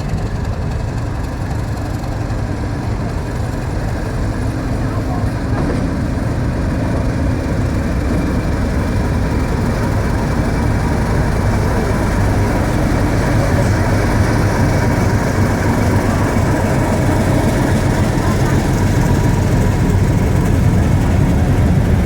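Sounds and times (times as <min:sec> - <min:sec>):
diesel locomotive engine drone: 0:00.0 - 0:22.0.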